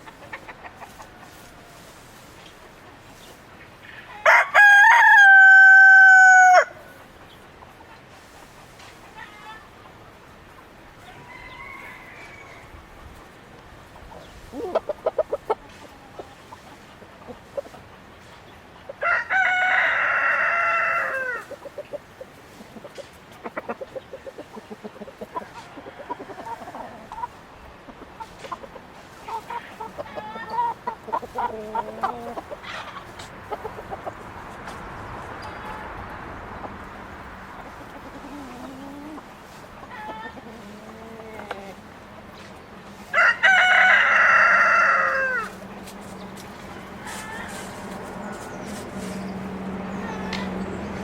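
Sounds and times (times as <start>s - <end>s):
chickens clucking: 0.0s - 51.0s
rooster crowing: 4.2s - 6.8s, 11.0s - 12.8s, 19.0s - 21.5s, 43.1s - 45.6s, 46.8s - 49.3s, 49.9s - 50.8s.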